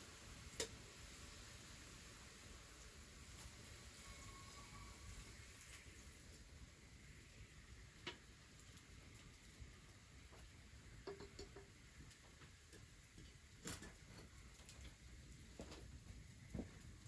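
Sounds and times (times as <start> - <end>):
faint sharp clicks and taps: 10.3 - 16.9.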